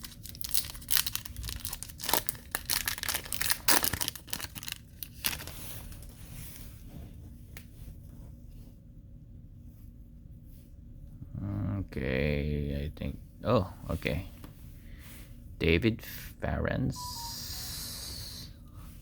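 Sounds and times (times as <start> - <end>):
wrapper tearing and crinkling: 0.0 - 6.1.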